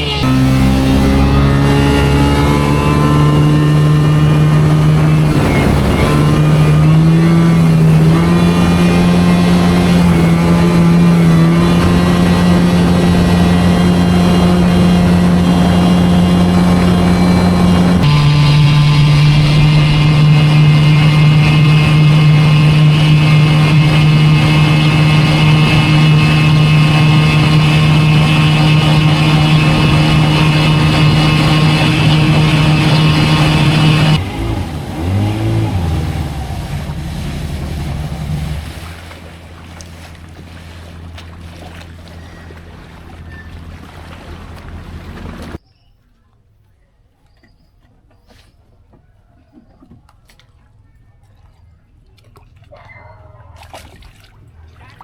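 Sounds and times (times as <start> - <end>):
boat engine running: 0.0 - 45.6.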